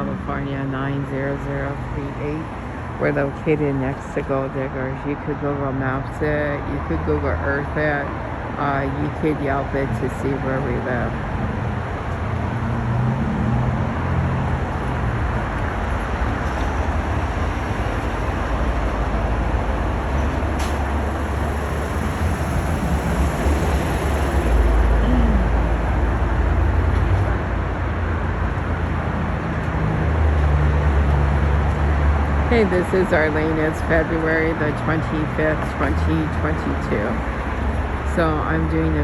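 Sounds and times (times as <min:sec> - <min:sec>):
road traffic rumble: 0:00.0 - 0:39.0.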